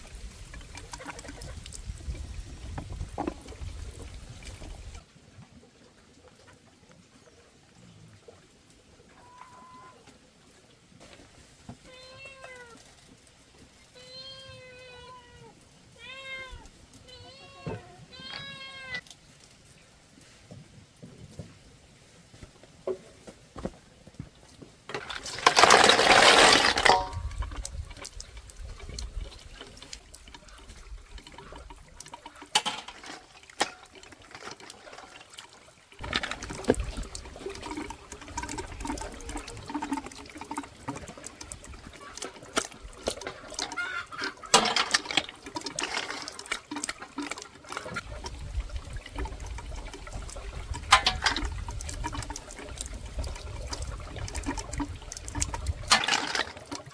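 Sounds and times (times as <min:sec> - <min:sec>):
clinks and knocks: 0:24.9 - 0:27.7, 0:32.5 - 0:33.8, 0:44.4 - 0:46.2, 0:50.8 - 0:51.6
water pouring: 0:24.9 - 0:56.9.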